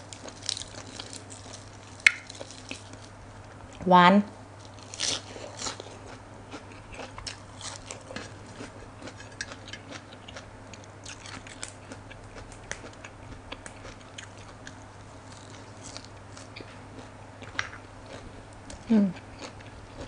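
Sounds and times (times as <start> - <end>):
steady low hum: 0.0 - 20.0
close chewing: 4.6 - 20.0.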